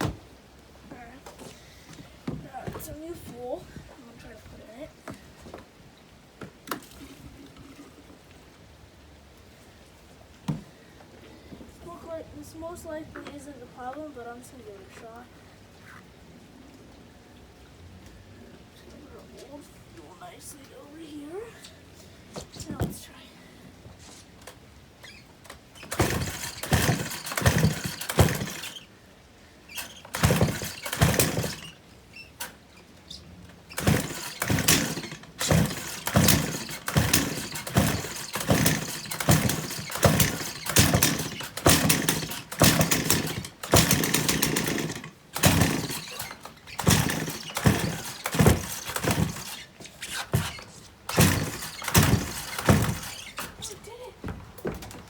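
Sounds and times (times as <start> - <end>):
chainsaw being pull-started: 25.5 - 28.9, 29.7 - 32.7, 33.7 - 53.7.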